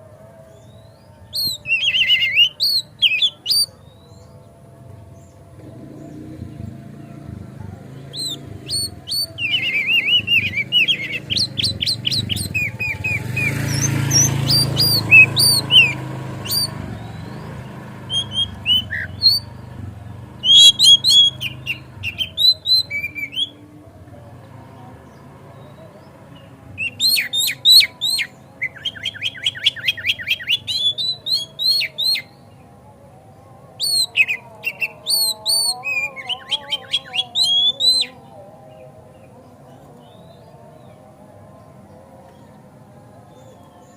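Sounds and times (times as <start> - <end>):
bird singing sharp repeated notes: 0.6 - 4.3, 5.2 - 23.6, 25.1 - 32.6, 33.8 - 38.2.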